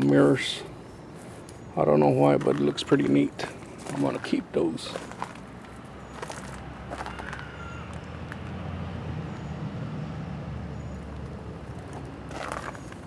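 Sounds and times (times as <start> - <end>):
motor vehicle passing: 4.8 - 13.0.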